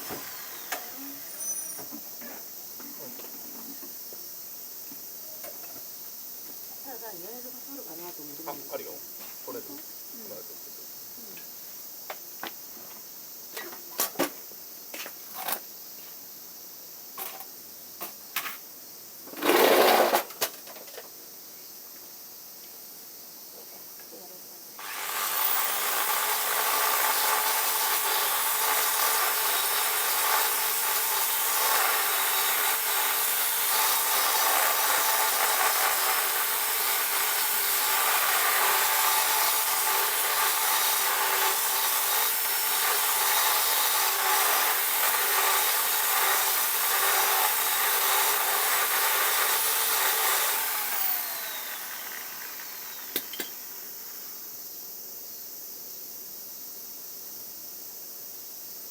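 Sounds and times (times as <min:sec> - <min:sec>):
power tool cutting or grinding: 0:00.0 - 0:01.9, 0:19.4 - 0:20.3, 0:24.8 - 0:54.4.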